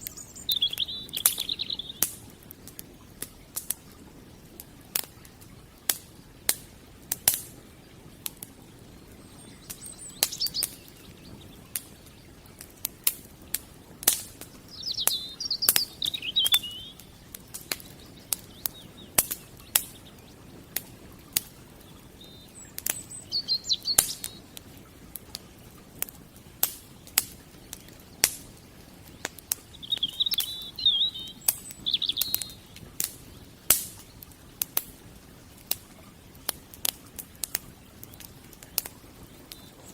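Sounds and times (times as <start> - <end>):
small bird chirping: 0.0 - 2.1, 9.2 - 12.3, 14.6 - 20.4, 21.3 - 24.5, 27.6 - 33.4, 39.2 - 39.9
wood fire crackling and popping: 0.0 - 39.9.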